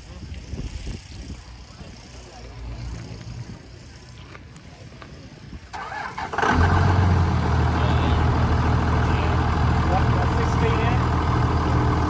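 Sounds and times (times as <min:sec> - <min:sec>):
diesel engine cranking and idling: 0:05.6 - 0:12.0.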